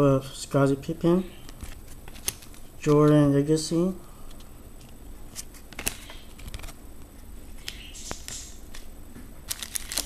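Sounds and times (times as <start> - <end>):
trading cards rustling: 1.5 - 3.2, 4.3 - 6.8, 7.5 - 10.0.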